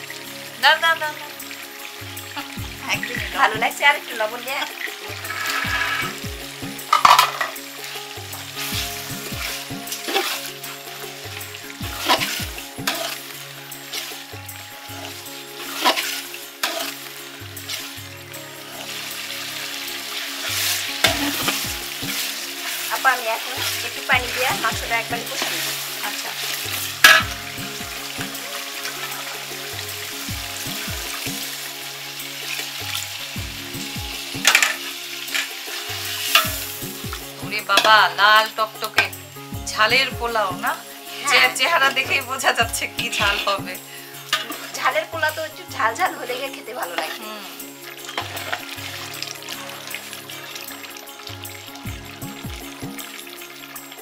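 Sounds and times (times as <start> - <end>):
chicken sizzling in a pot: 0.0 - 54.0
metal ladle stirring: 4.8 - 6.2, 6.8 - 18.0, 19.6 - 32.8, 34.4 - 36.8, 44.3 - 44.9, 47.9 - 51.0
metal spoon scraping a pot: 5.2 - 6.2, 6.9 - 7.6, 12.0 - 13.3, 14.9 - 17.1, 44.3 - 44.8.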